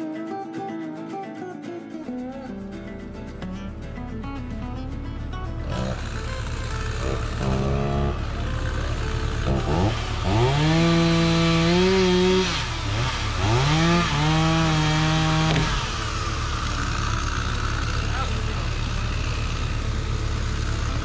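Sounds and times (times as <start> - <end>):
chainsaw revving: 5.6 - 21.0.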